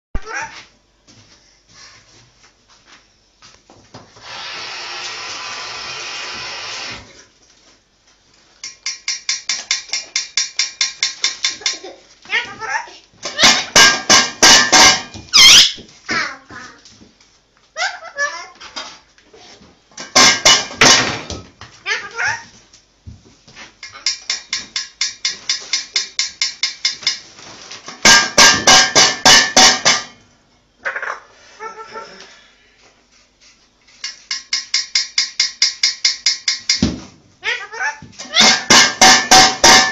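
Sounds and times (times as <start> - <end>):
rapid tapping on a dish: 8.8 - 11.8, 13.4 - 15.1
parrot chirping: 13.4 - 15.8.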